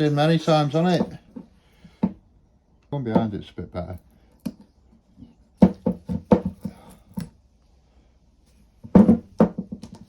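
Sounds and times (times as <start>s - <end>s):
knocks and clatter of tools: 4.4s - 7.4s, 8.8s - 10.0s.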